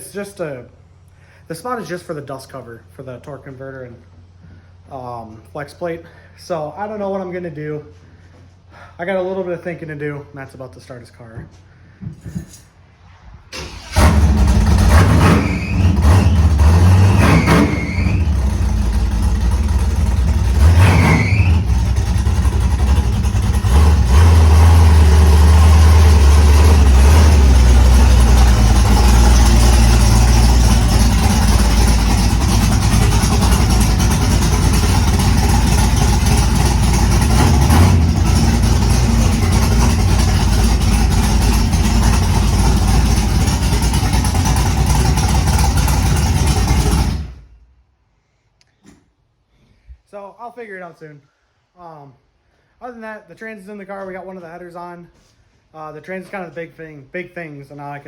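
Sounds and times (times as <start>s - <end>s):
car engine starting: 13.4s - 47.7s
engine revving: 13.6s - 47.5s
car engine idling: 13.6s - 47.6s.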